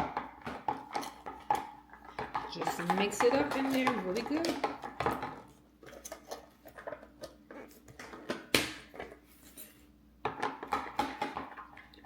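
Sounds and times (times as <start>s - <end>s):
spoon scraping container: 9.3s - 9.9s.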